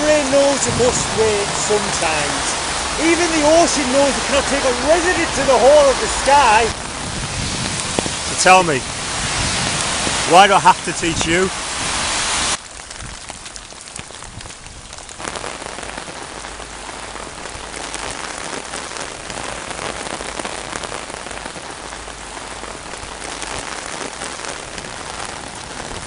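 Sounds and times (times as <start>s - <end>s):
loud wash of water: 0.0s - 12.6s
rain on hard surface: 0.0s - 26.0s.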